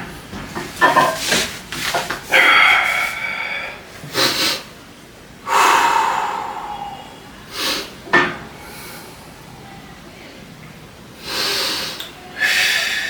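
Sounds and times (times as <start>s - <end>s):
person breathing hard: 2.3s - 4.7s, 5.4s - 9.6s, 11.2s - 13.0s.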